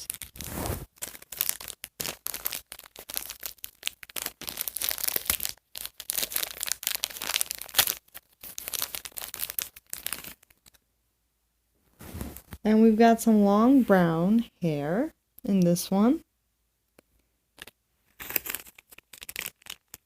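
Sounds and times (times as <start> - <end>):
bag tearing open: 0.0 - 10.8, 18.2 - 20.0
packaging crinkling: 0.0 - 10.8, 18.1 - 20.0.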